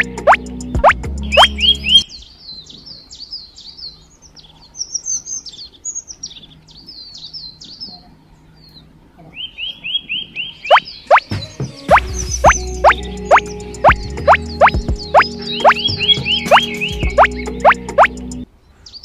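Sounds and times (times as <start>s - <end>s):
small birds chirping: 0.0s - 19.0s
burst of music: 11.1s - 18.4s.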